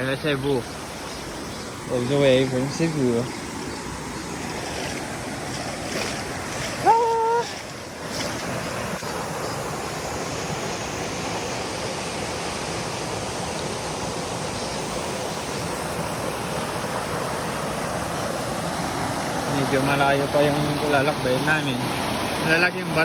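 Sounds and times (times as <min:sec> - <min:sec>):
stream water over rocks: 0:00.0 - 0:23.0
rising voice-like call: 0:06.8 - 0:07.7.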